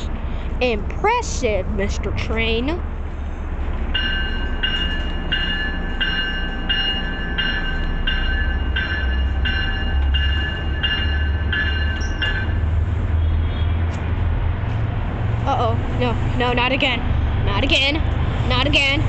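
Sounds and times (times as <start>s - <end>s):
diesel locomotive rumble: 0.0s - 19.0s
locomotive bell ringing: 3.9s - 12.8s.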